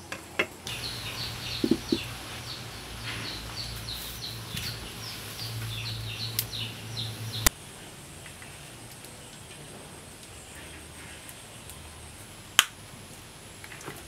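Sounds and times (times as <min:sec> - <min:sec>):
small bird chirping: 0:00.7 - 0:07.5
low steady hum: 0:00.7 - 0:08.7.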